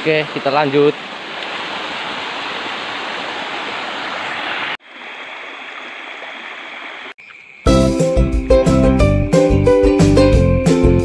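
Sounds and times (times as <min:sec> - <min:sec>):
stream rushing over rocks: 0:00.0 - 0:07.2.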